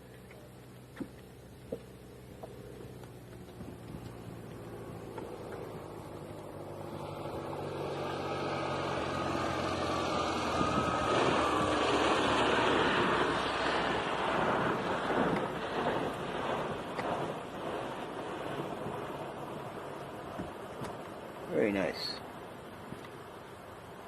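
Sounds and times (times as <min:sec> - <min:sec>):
float plane engine drone: 0:00.0 - 0:24.0
plane rushing past: 0:02.6 - 0:24.0.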